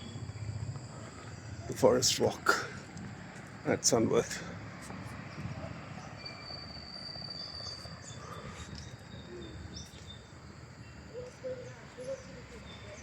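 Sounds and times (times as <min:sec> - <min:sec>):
insects trilling: 0:00.0 - 0:05.3.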